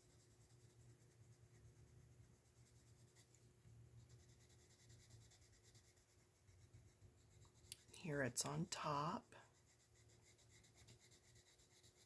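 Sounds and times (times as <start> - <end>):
pencil scratching on paper: 0.0 - 12.0.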